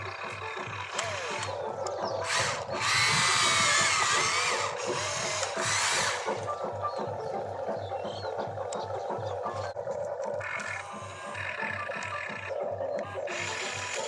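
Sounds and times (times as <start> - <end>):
toy electric motor whirring: 0.0 - 6.8, 10.4 - 14.0
background music: 0.0 - 14.0.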